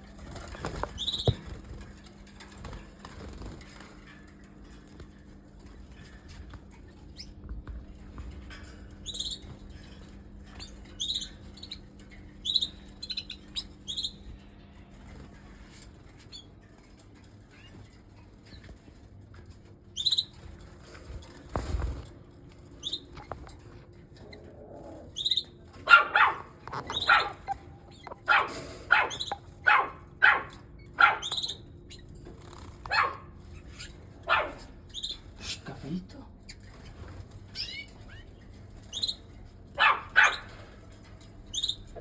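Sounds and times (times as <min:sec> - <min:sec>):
canaries chirping: 0:00.0 - 0:04.8, 0:08.9 - 0:19.0, 0:19.6 - 0:20.6, 0:22.6 - 0:42.0
dog barking: 0:25.8 - 0:31.5, 0:32.9 - 0:33.4, 0:34.2 - 0:34.7, 0:39.8 - 0:40.6.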